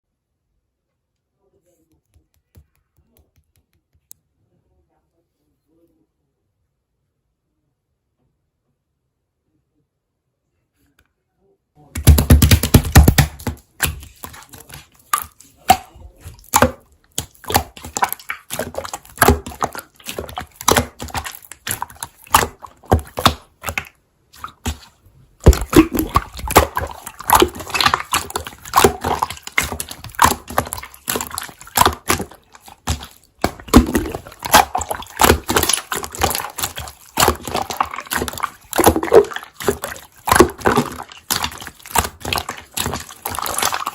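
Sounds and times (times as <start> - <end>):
hands squishing slime: 12.0 - 43.9.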